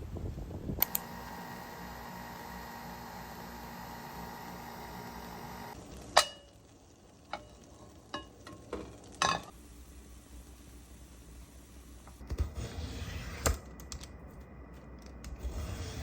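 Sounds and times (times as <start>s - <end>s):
steady hum: 0.8s - 6.0s.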